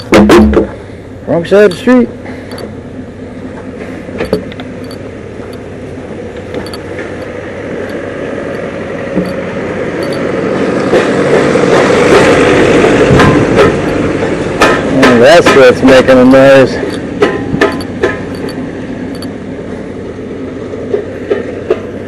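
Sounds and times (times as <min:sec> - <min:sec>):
sharp metal knocks: 0:00.0 - 0:00.8, 0:04.2 - 0:05.7, 0:06.6 - 0:09.4, 0:10.0 - 0:10.3, 0:10.9 - 0:19.3
truck engine and road noise: 0:00.0 - 0:22.0.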